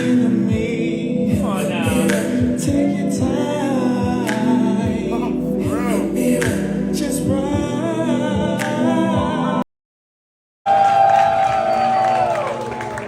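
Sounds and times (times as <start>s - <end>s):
beat-driven backing track: 0.0s - 9.6s
man singing: 0.0s - 9.6s.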